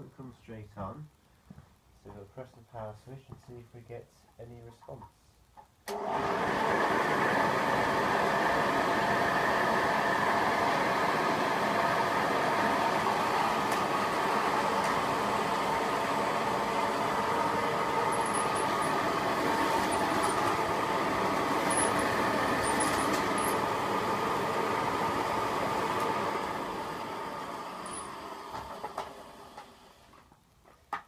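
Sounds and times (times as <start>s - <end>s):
upright vacuum cleaner motor running: 5.9s - 30.1s.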